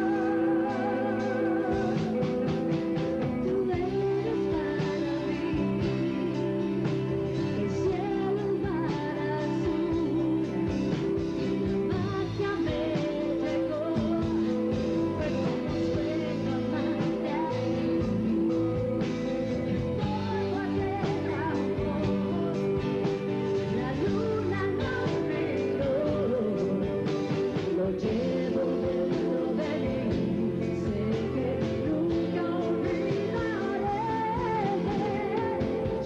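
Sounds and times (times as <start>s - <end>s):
rock band playing live: 0.0s - 36.0s.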